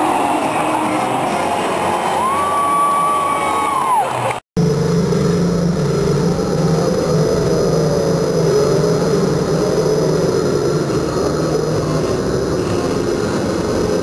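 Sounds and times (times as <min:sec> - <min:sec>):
motorcycle engine deep drone: 0:04.6 - 0:14.0.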